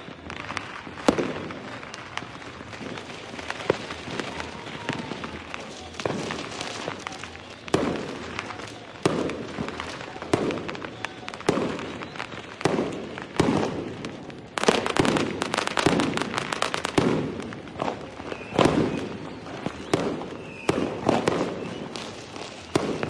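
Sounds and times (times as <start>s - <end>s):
fireworks bangs: 0.0s - 23.0s
fireworks crackling: 0.0s - 23.0s.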